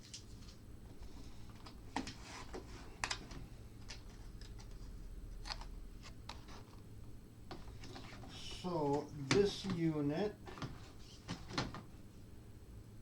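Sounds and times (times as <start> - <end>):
low steady hum: 0.0 - 13.0
paper and cardboard rustling: 7.5 - 11.9.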